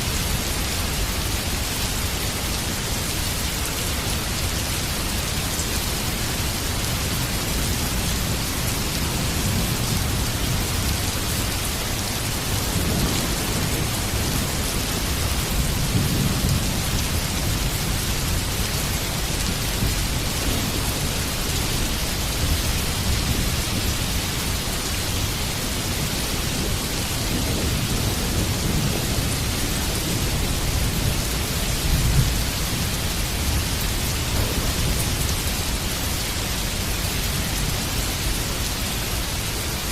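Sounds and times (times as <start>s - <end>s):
heavy rain: 0.0s - 39.9s
thunder rumbling: 7.8s - 35.8s.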